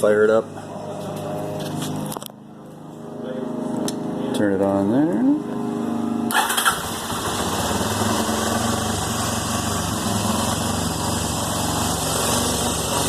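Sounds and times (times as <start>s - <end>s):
motorcycle engine idling: 6.3s - 13.0s.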